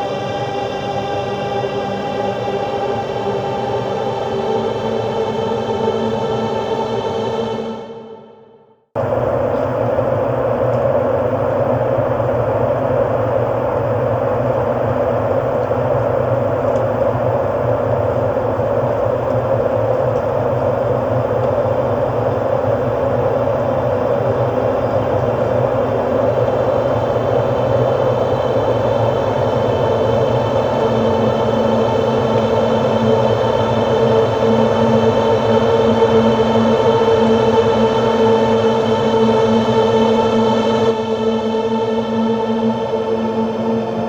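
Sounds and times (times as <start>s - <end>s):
machine-like droning hum: 9.0s - 44.0s.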